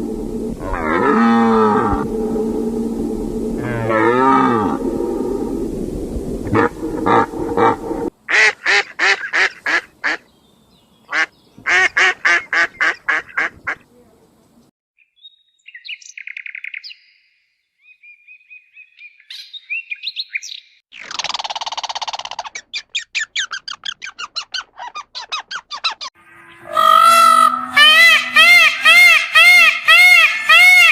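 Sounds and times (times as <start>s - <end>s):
bird chirps and trills: 15.0s - 29.2s
harsh bird call: 26.2s - 30.9s.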